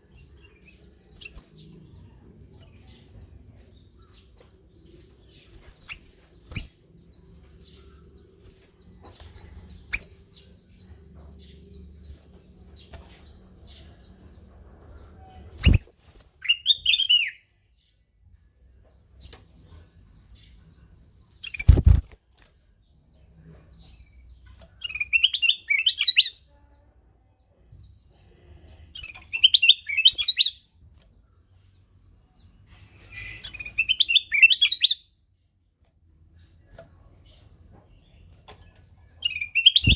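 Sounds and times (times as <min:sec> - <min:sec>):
bird singing warbled notes: 0:39.3 - 0:39.9.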